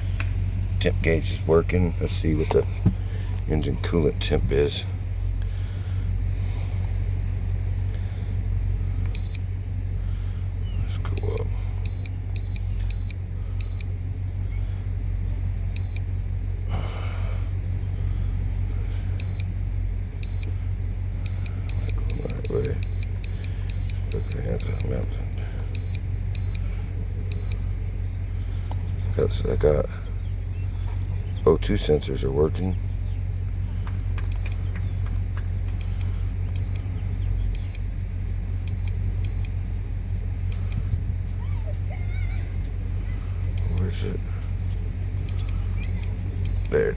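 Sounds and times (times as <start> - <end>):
car engine idling: 0.0 - 46.9
scan tool beeps: 45.3 - 46.8.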